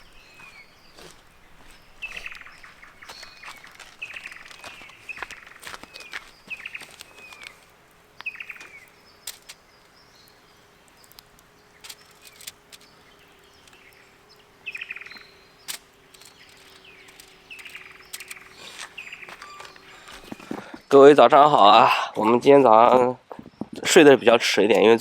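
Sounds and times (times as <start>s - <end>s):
downward-sliding bird calls: 0.0s - 20.8s
sharp clicks: 2.3s - 10.0s, 10.9s - 20.6s.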